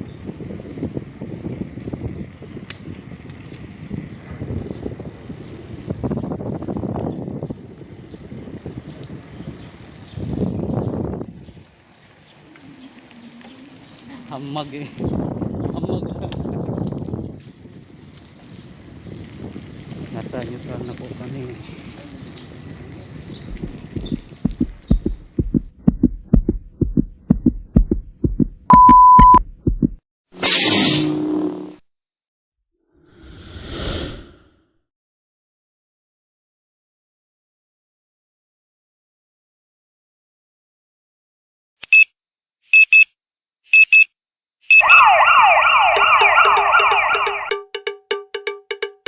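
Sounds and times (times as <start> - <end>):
heartbeat pulse: 23.5 - 30.0
quick ticking beat: 23.5 - 30.0, 46.0 - 49.0
cowbell-like beat: 24.0 - 30.0, 45.9 - 49.0
electronic beep: 28.7 - 29.4
electronic yelp siren: 44.7 - 47.6.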